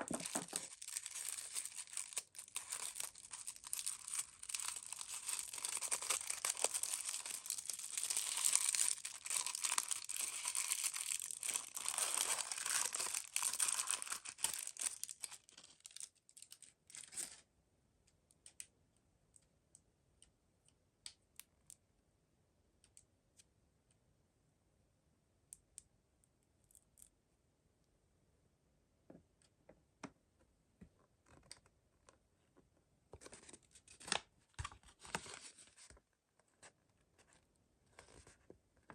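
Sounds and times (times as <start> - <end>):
packaging torn and crinkled: 0.0 - 17.4.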